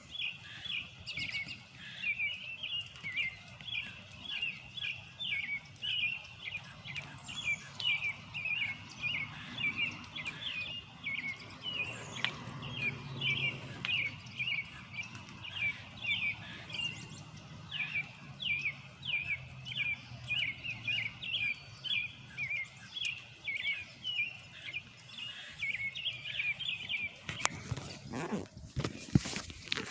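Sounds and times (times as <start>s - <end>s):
rustling: 27.2s - 29.9s.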